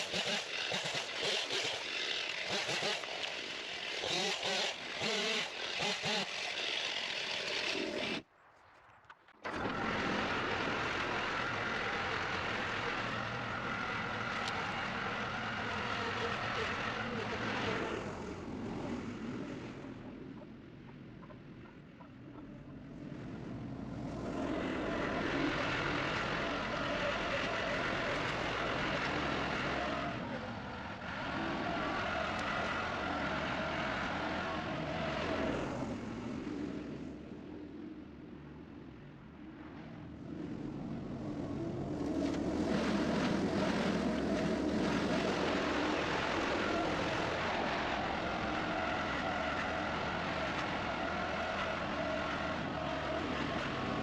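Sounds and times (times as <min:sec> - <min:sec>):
skid steer engine working: 0:00.0 - 0:08.2, 0:09.4 - 0:19.2.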